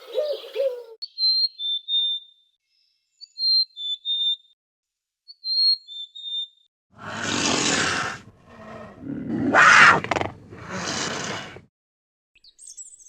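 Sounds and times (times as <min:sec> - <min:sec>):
harsh animal calls: 0:07.0 - 0:11.6.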